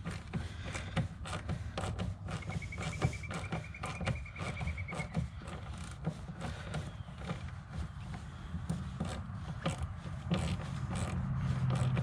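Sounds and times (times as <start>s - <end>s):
wrench clicking on bolts: 8.7s - 12.0s.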